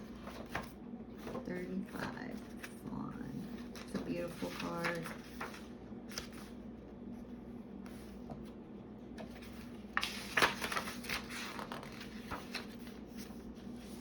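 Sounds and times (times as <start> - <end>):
paper rustling and tapping: 0.0 - 2.8, 3.5 - 6.5, 9.2 - 13.4
low electrical hum: 0.0 - 14.0.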